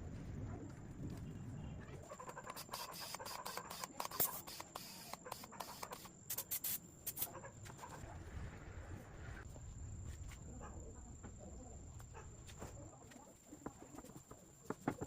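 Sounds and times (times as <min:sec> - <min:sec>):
short scratches and clicks: 0:02.2 - 0:07.4.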